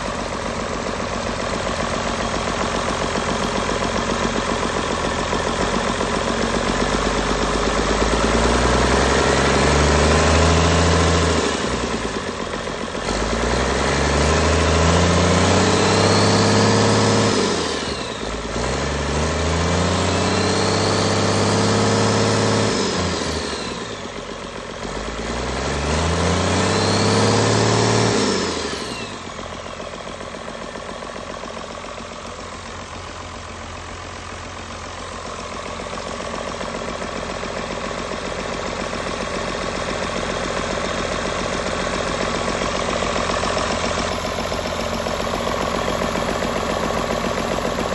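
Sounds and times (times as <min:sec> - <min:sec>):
diesel engine idling: 0:00.0 - 0:47.9
diesel engine revving: 0:00.0 - 0:47.9.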